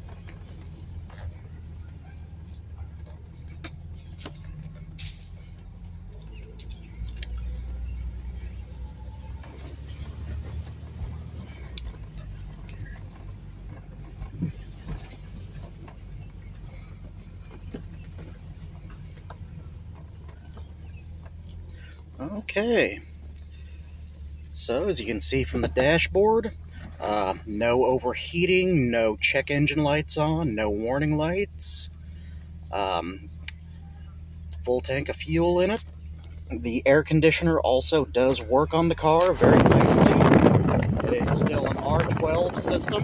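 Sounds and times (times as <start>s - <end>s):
car engine at low revs: 0.0s - 43.0s.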